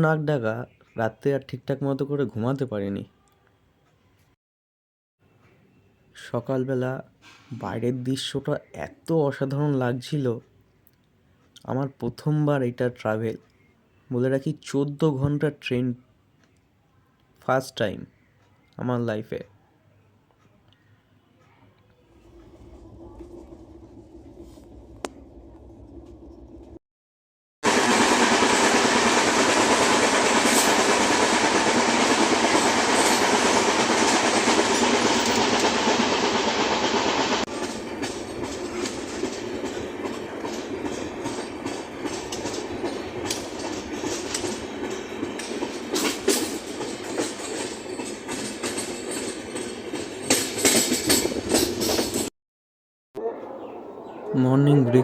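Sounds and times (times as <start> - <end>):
train wheel and rail noise: 22.1 - 26.8, 27.6 - 52.3
clattering over rail joints: 37.6 - 52.3.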